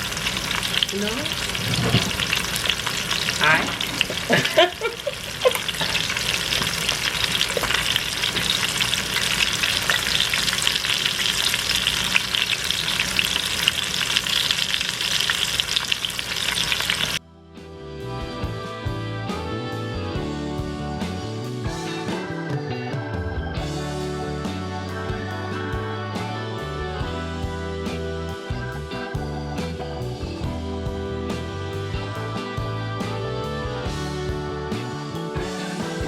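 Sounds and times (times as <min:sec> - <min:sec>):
chicken sizzling in hot oil: 0:00.0 - 0:17.2.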